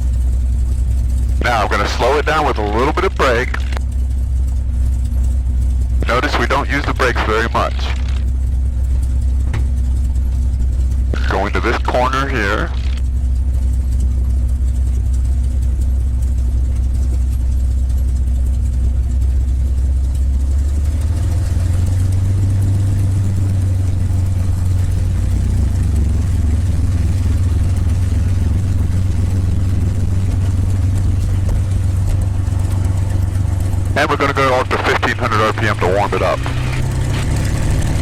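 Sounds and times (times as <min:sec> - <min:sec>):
propeller plane engine droning: 0:00.0 - 0:38.0.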